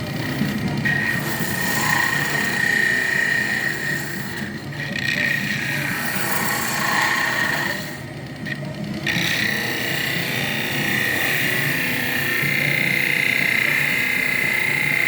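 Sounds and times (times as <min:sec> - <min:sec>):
wood lathe turning: 0:00.0 - 0:15.0
turning tool scraping wood: 0:00.2 - 0:08.0.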